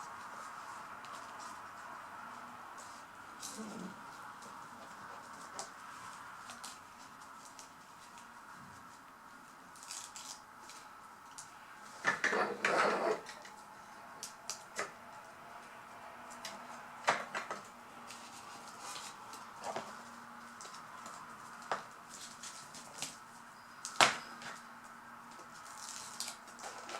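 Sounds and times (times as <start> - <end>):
rustling and clatter: 25.3 - 26.9.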